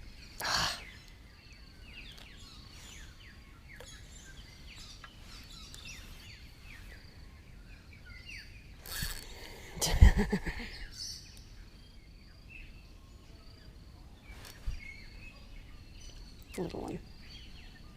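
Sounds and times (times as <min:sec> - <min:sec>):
low background noise: 0:00.0 - 0:17.9
small birds chirping: 0:00.0 - 0:17.9
brief rustle: 0:14.3 - 0:14.9.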